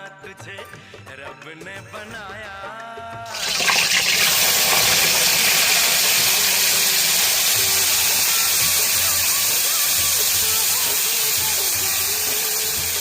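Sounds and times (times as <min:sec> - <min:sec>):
food sizzling in hot oil: 0:03.3 - 0:13.0.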